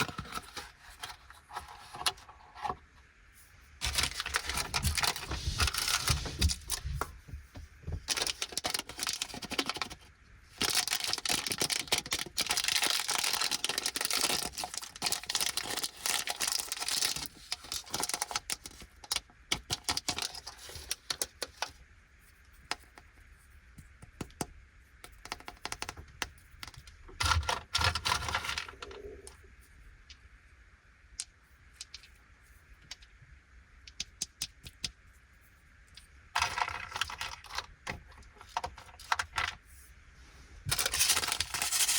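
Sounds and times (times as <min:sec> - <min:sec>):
plastic packaging crinkling: 0:03.8 - 0:07.0, 0:08.1 - 0:10.0, 0:10.6 - 0:18.9, 0:36.4 - 0:39.4, 0:40.7 - 0:41.9.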